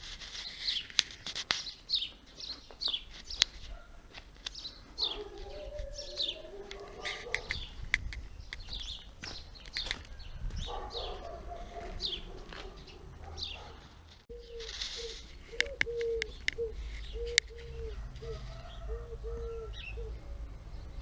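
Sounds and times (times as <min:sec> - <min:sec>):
small bird chirping: 0:04.5 - 0:11.4, 0:12.0 - 0:21.0
low wavering bird call: 0:05.2 - 0:07.2, 0:14.3 - 0:20.2
sharp clicks: 0:15.6 - 0:16.6.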